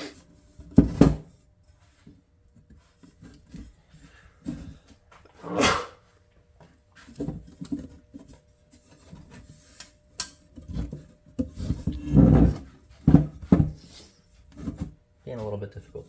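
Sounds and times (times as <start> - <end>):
device case scraping: 5.3 - 6.0.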